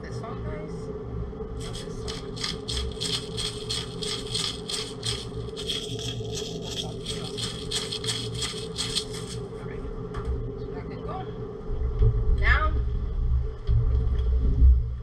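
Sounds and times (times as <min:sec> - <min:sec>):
steady hum: 0:00.0 - 0:15.0
rapid scraping strokes: 0:01.6 - 0:09.5.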